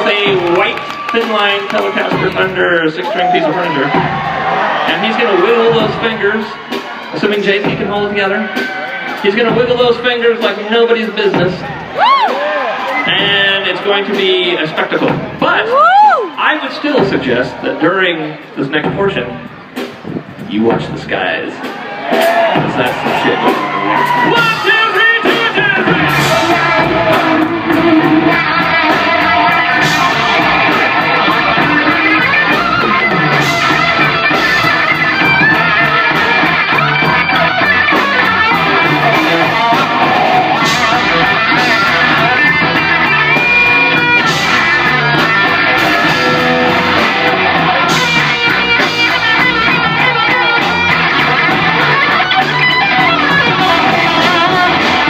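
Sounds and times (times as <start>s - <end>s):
drums: 0.0s - 55.0s
live rock band: 0.0s - 55.0s
electric guitar lead with bending notes: 22.6s - 55.0s.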